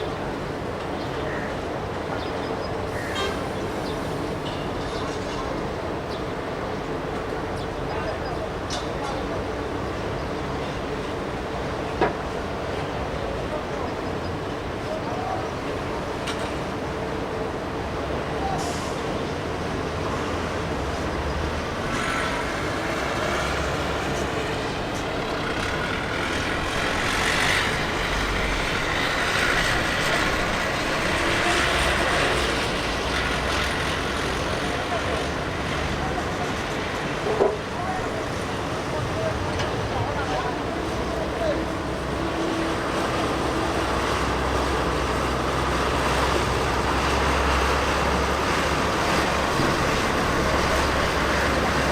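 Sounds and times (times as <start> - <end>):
vehicle rumble: 2.7 - 51.9
jet engines rushing: 18.4 - 51.9
jet engine whine: 20.1 - 51.9.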